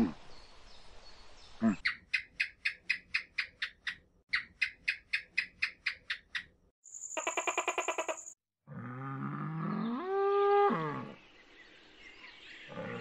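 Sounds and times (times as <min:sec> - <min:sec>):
high chirps: 0:01.8 - 0:08.4.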